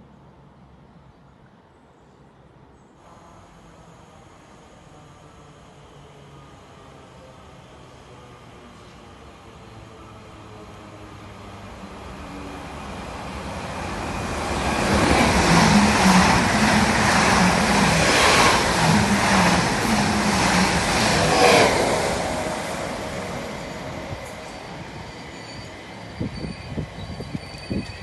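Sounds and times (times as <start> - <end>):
train passing: 3.0 - 28.0.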